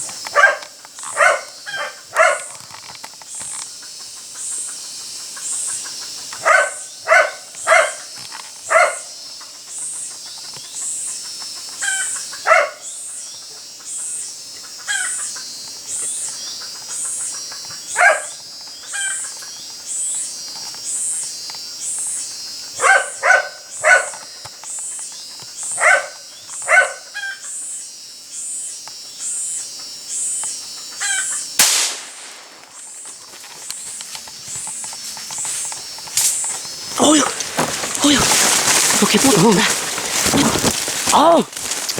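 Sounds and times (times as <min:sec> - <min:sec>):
cicadas chorus: 0:00.0 - 0:41.9
sharp crack: 0:31.6 - 0:33.0.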